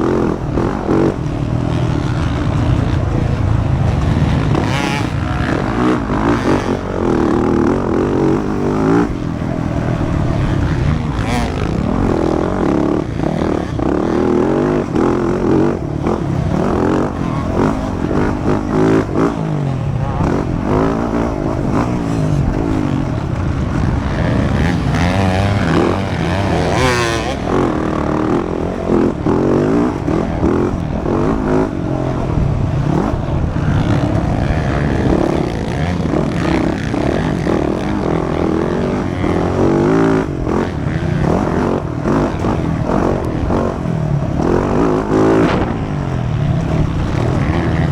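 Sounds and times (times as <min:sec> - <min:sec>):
dirt bike engines revving: 0:00.0 - 0:47.9.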